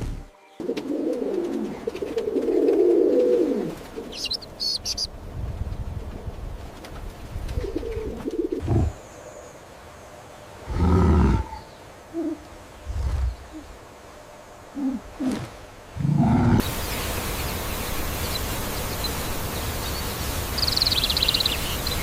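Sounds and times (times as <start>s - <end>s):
birds low wavering calls: 10.6s - 22.0s.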